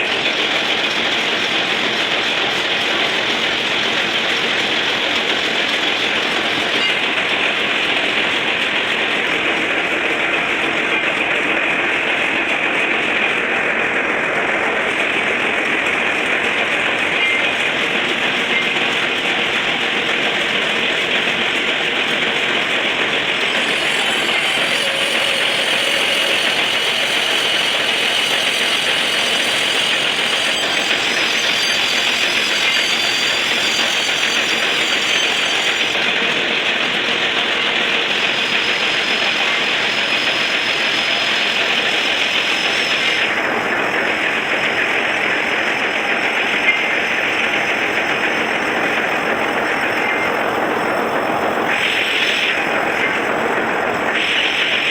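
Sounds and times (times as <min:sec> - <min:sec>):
lathe running: 0:00.0 - 0:54.9
thin high whistling tones: 0:23.1 - 0:36.0, 0:37.9 - 0:43.3.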